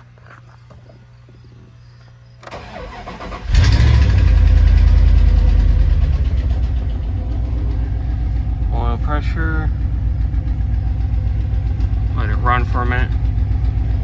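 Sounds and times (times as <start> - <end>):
starter motor cranking: 2.4 - 9.2
engine idling loudly: 3.4 - 14.0.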